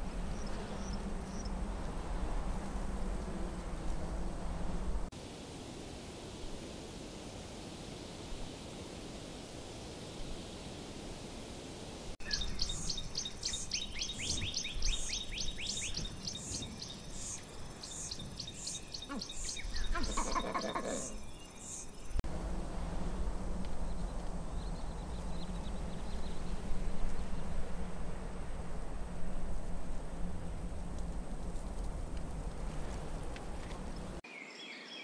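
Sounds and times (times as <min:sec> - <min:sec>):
steady background hiss: 0:00.0 - 0:35.0
distant faint chirps: 0:12.2 - 0:34.2.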